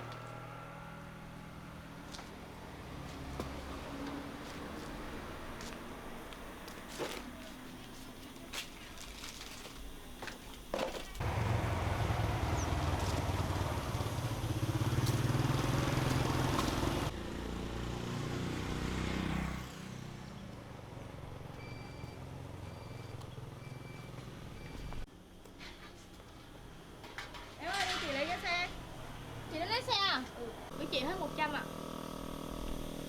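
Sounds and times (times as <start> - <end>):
motorbike engine running: 11.2 - 24.2, 29.2 - 33.0
faint short beeps: 21.6 - 25.0.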